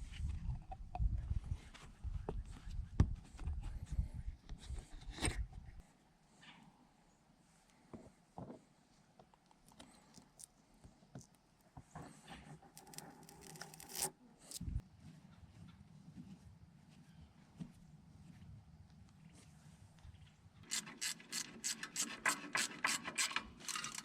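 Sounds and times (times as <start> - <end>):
scraping and rubbing of metal parts: 12.1 - 14.6.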